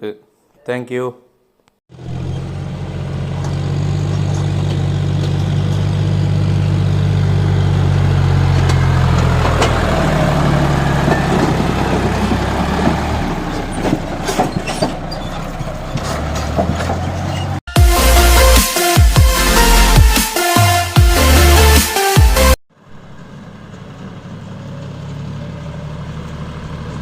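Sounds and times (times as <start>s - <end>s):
tractor diesel engine running: 1.9s - 27.0s
knocks and rattles: 10.9s - 17.6s.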